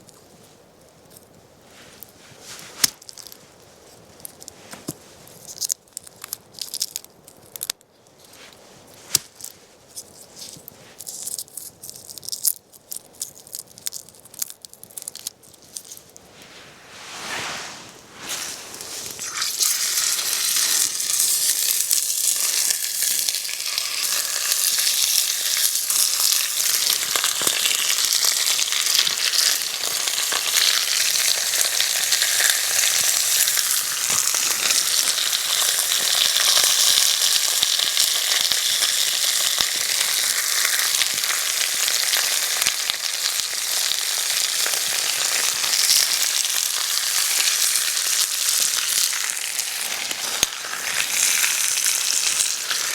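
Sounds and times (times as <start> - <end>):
food sizzling in a pan: 18.2 - 52.9.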